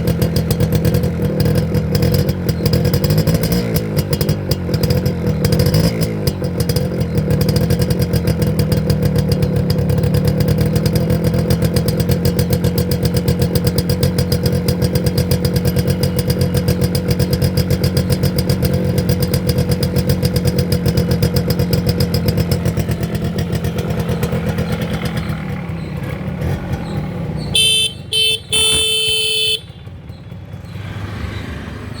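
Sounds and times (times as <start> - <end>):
motorcycle engine idling: 0.0 - 31.6
electric horn beeps: 27.6 - 30.1.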